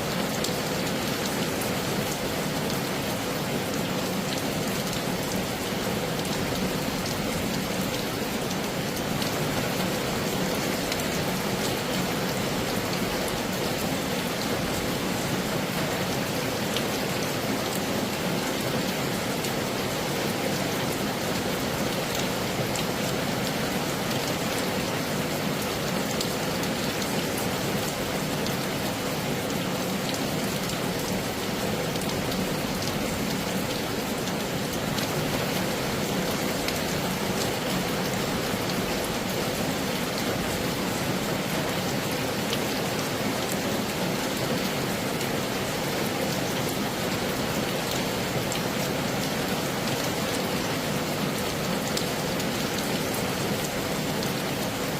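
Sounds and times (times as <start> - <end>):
heavy rain: 0.0 - 54.9.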